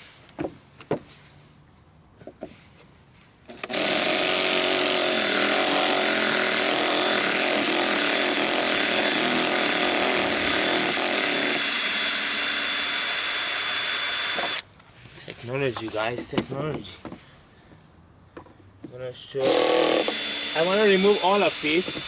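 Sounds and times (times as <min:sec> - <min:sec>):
power tool running: 0:03.5 - 0:14.6, 0:19.4 - 0:22.0.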